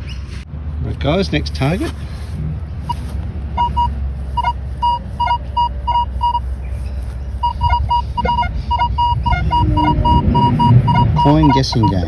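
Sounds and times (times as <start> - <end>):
steady low rumble: 0.4 - 12.0
metal detector short beeps: 3.6 - 6.4, 7.4 - 12.0.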